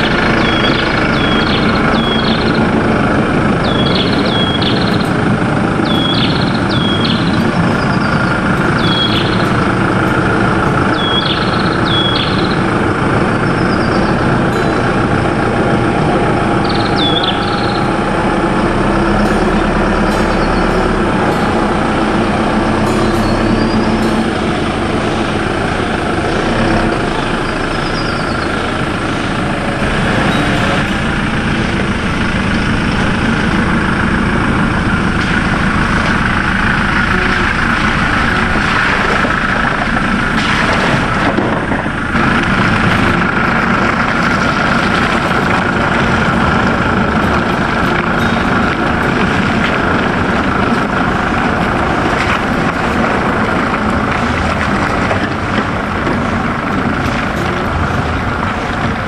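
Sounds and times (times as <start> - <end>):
engine drone with whine: 0.0 - 59.0.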